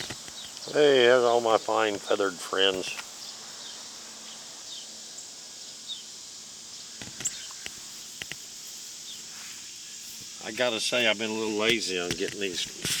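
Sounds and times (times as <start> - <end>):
insect drone: 0.0 - 13.0
bird chirps: 6.7 - 7.8.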